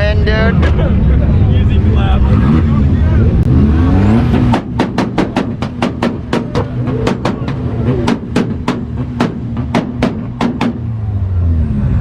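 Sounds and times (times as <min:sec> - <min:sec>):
car engine drone: 0:00.0 - 0:12.0
exhaust pops and bangs: 0:04.0 - 0:11.0.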